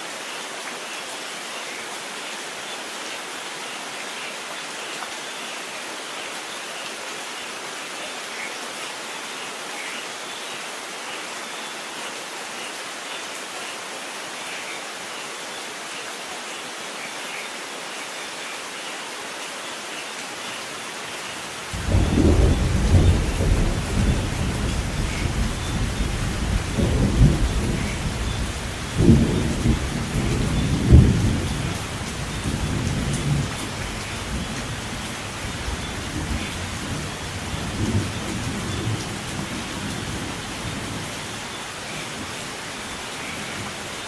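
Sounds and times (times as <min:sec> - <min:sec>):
steady rain falling: 0:00.0 - 0:44.0
thunder rumble: 0:21.8 - 0:31.7.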